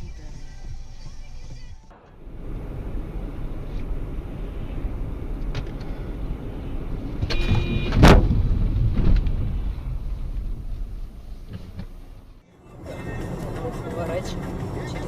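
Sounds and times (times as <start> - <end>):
car road and engine rumble: 0.0 - 15.0
car crash impact: 1.9 - 12.4
brief steady tone: 7.2 - 8.0.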